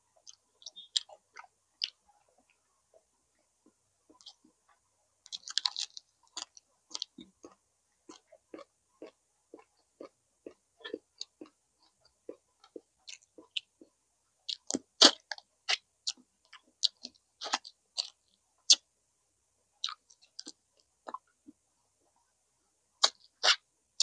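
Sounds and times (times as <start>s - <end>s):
wet mouth smacks chewing: 5.3s - 7.1s, 23.0s - 23.6s
clicks of biting: 5.3s - 8.7s, 23.0s - 23.6s.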